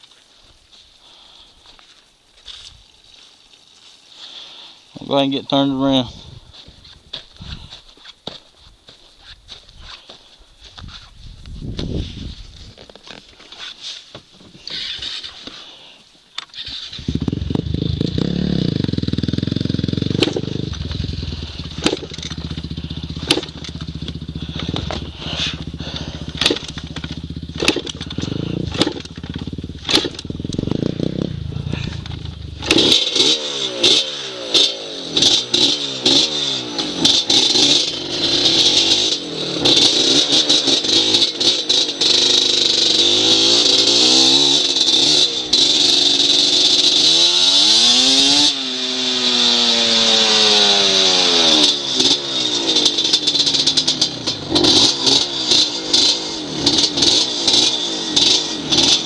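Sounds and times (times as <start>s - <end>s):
dirt bike engine revving: 16.6s - 59.0s
sharp cracks and knocks: 20.1s - 21.0s, 21.7s - 22.6s, 23.2s - 25.6s, 26.3s - 30.8s.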